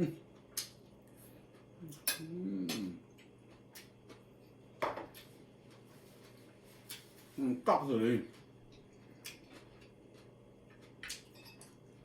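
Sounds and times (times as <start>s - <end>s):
short vocal sound: 2.2s - 3.0s.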